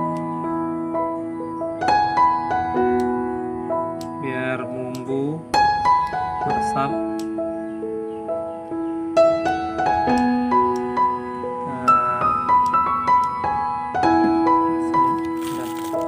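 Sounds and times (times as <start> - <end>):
gentle keyboard melody: 0.0 - 16.0.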